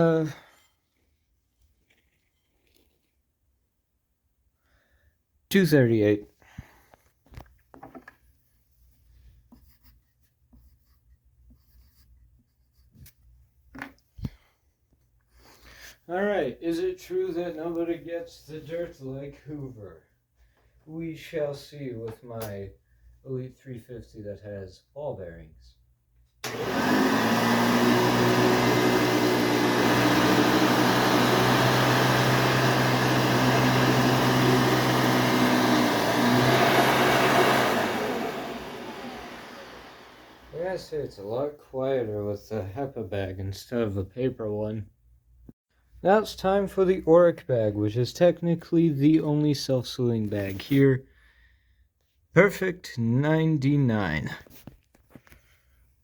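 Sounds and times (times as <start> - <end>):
pencil scratching on paper: 9.4 - 13.0
vacuum cleaner running: 26.4 - 40.8.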